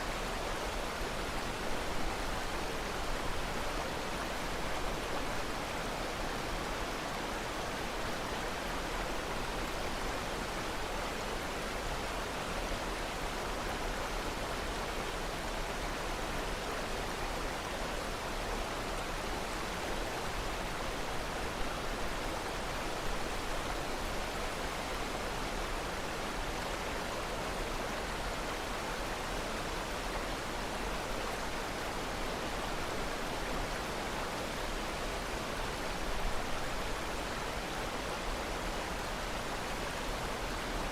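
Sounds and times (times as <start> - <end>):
flowing water rushing: 0.0 - 40.9.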